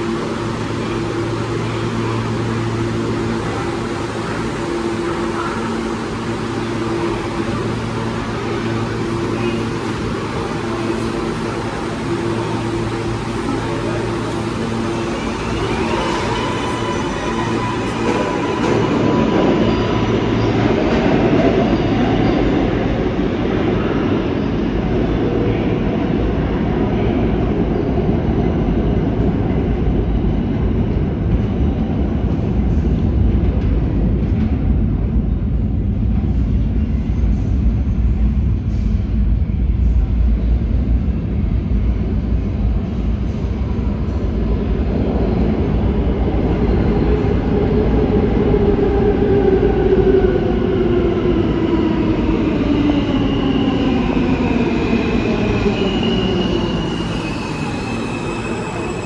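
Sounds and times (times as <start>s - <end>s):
train wheels rumbling on rail: 0.0s - 59.0s
high squeal: 54.7s - 59.0s.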